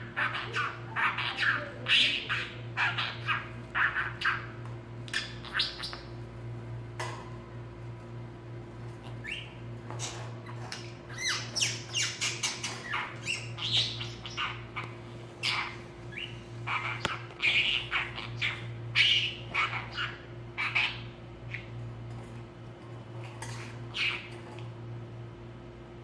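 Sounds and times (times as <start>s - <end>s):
budgerigar chirping and squawking: 0.0s - 6.1s, 9.1s - 21.8s, 23.9s - 24.4s
steady low hum: 0.0s - 26.0s.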